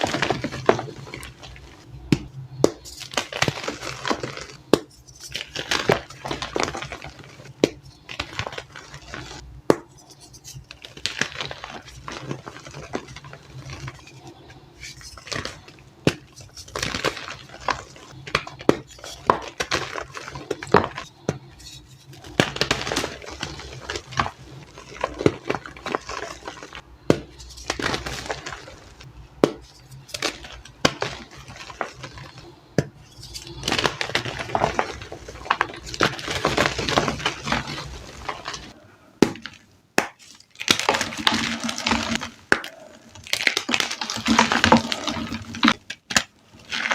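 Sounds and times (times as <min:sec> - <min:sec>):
chalk blocks being crushed: 0:00.0 - 0:46.9.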